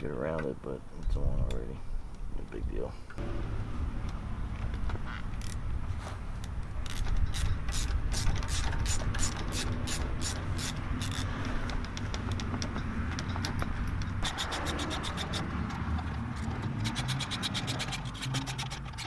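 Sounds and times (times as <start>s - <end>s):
ratchet wrench clicking: 6.9s - 12.5s, 13.2s - 19.0s.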